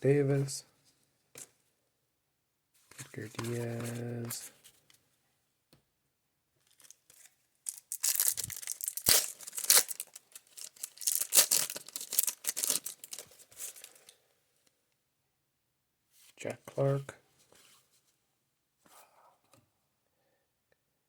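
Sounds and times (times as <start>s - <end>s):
wrapper tearing and crinkling: 6.7s - 14.1s.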